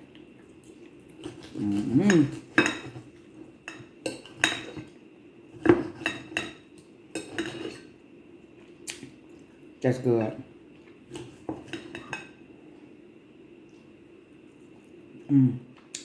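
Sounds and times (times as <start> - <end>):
knife and fork scraping a plate: 1.2 - 4.9, 5.6 - 6.6, 7.2 - 7.9, 11.1 - 12.3.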